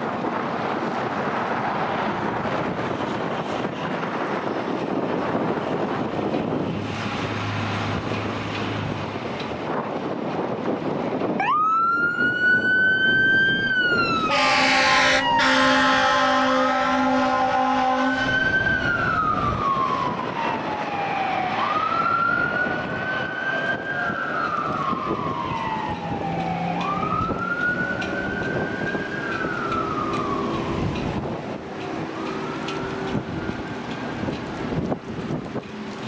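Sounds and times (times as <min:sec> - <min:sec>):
truck engine and road noise: 0:00.0 - 0:36.0
siren wailing: 0:11.4 - 0:34.4
air horn blast: 0:14.2 - 0:18.5.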